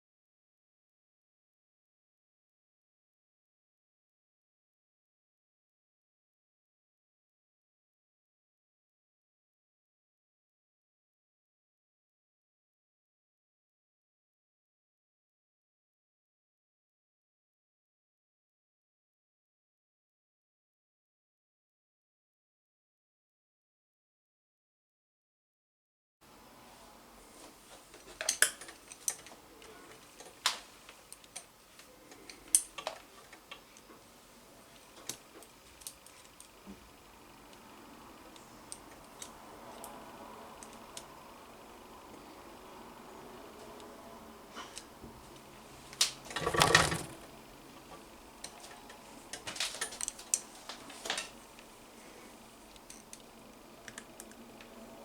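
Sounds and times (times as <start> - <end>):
small hard parts clicking: 46.3 - 47.3.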